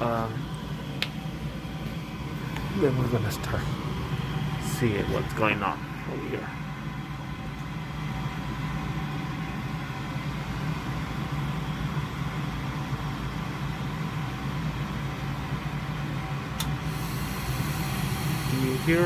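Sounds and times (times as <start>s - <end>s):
furnace motor humming: 0.0s - 19.0s
sharp click: 16.6s - 16.8s
gas flowing: 16.6s - 19.0s.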